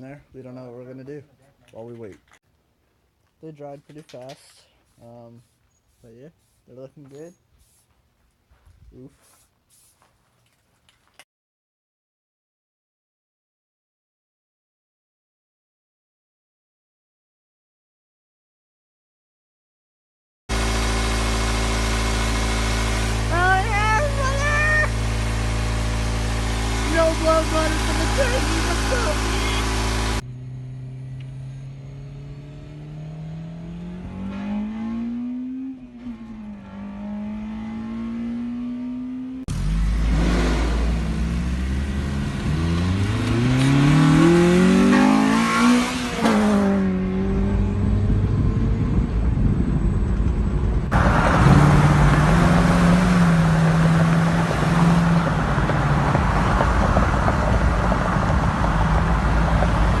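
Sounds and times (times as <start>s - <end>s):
car engine accelerating: 20.5s - 60.0s
road and wind noise: 20.5s - 60.0s.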